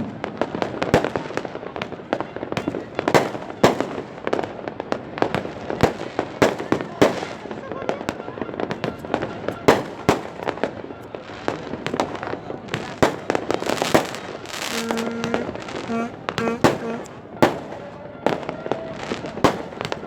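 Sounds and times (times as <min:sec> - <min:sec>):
fireworks banging and crackling: 0:00.0 - 0:20.0
horn blasts: 0:13.5 - 0:19.0.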